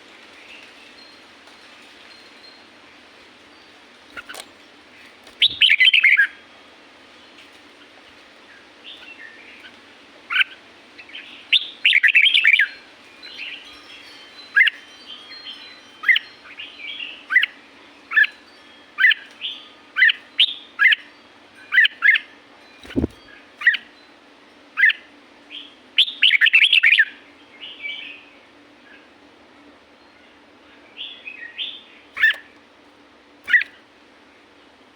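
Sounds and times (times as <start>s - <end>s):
bird chirping and warbling: 5.3s - 6.4s, 21.8s - 23.9s, 31.0s - 32.6s, 33.5s - 33.8s.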